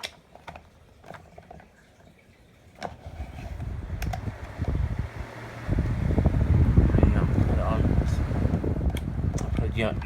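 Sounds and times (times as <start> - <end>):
desk fan air rumble: 3.0 - 10.0
fan switch clicks: 3.9 - 5.0.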